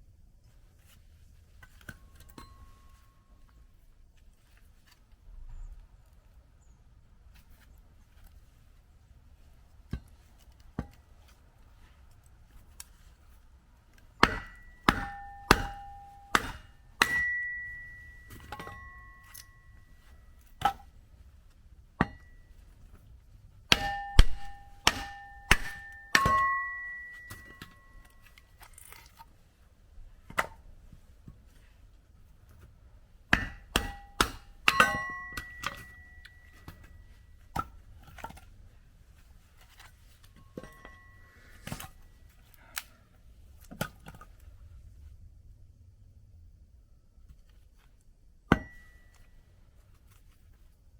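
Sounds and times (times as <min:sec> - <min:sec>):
axe striking firewood: 0:13.9 - 0:19.8, 0:20.4 - 0:21.0, 0:22.0 - 0:22.4, 0:23.7 - 0:29.2, 0:30.3 - 0:30.6, 0:33.3 - 0:38.4, 0:48.5 - 0:49.0.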